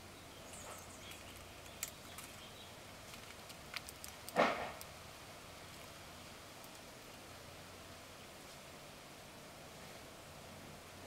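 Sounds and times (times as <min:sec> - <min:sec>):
faint high bird chirps: 0:00.0 - 0:02.8.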